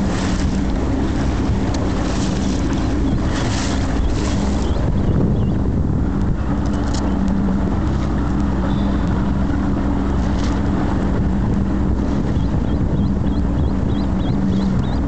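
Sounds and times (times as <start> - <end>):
boat motor humming: 0.0 - 15.0
wind buffeting microphone: 0.0 - 15.0.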